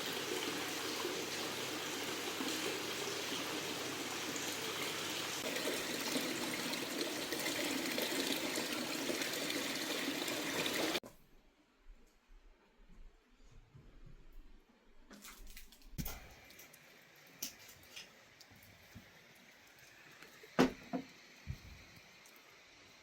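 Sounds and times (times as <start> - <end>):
water pouring and trickling: 0.0 - 11.0.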